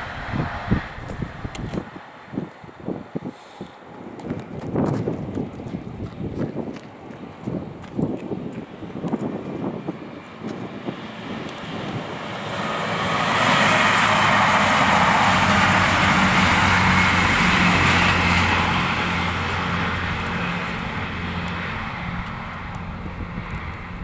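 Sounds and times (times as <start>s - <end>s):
train passing: 0.0s - 4.1s, 10.9s - 24.0s.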